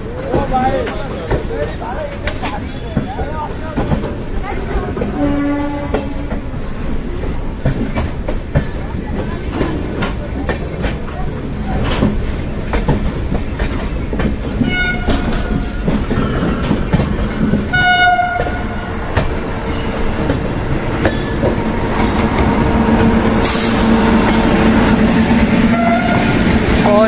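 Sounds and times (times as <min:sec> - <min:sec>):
train passing with hum: 0:00.0 - 0:27.0
train rumble: 0:00.0 - 0:27.0
wheels clattering on rails: 0:00.0 - 0:27.0
locomotive horn blasts: 0:05.1 - 0:06.4, 0:14.6 - 0:15.7, 0:17.7 - 0:18.9, 0:25.7 - 0:26.5.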